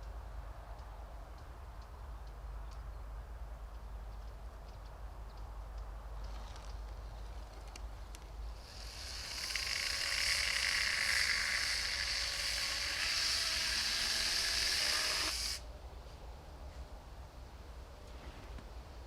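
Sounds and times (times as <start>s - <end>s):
steady hiss: 8.5s - 15.7s.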